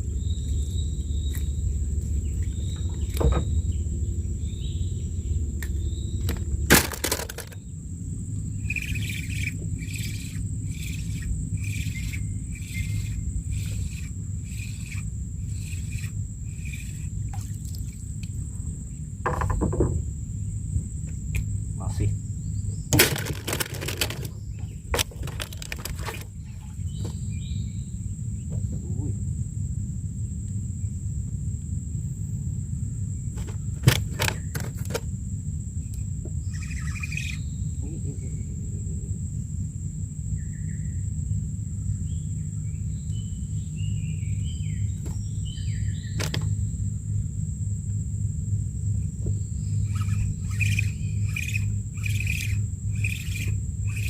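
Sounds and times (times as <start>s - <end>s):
low rumble: 0.0s - 6.7s
high insect drone: 0.0s - 54.0s.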